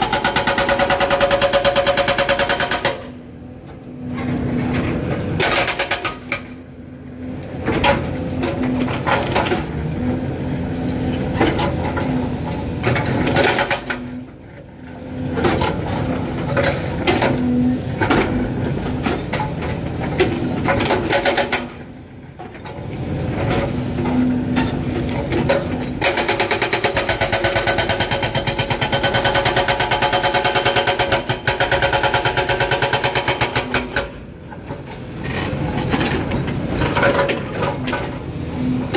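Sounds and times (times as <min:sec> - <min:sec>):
hydraulic breaker hammering rock: 0:00.0 - 0:03.2, 0:25.3 - 0:34.2.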